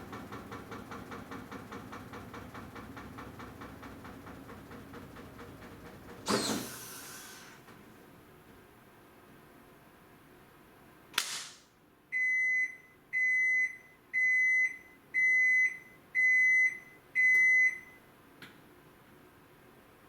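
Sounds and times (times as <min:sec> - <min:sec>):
sharp click: 0:11.2 - 0:11.7
washing machine beeps: 0:12.1 - 0:18.0.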